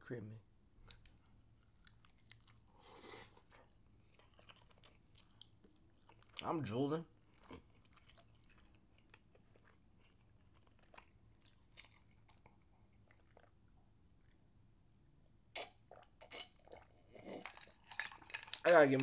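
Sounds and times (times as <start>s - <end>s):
faint chewing and mouth clicks: 0.8s - 14.6s, 15.5s - 19.0s
sipping and gulping water: 15.5s - 19.0s.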